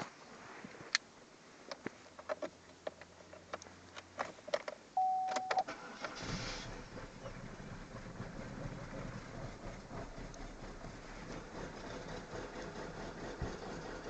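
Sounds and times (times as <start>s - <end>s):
car keys rattling in ignition: 2.2s - 8.3s
short steady beep: 5.0s - 5.6s
car engine starting and idling: 5.0s - 14.0s.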